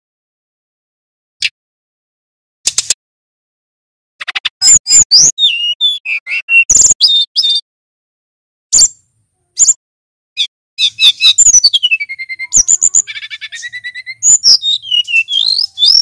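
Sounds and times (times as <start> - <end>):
bird singing: 4.3 - 7.6, 10.4 - 16.0.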